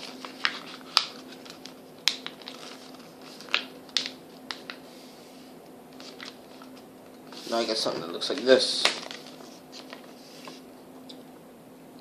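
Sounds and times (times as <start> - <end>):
paper being folded: 0.0 - 4.9, 5.9 - 10.6.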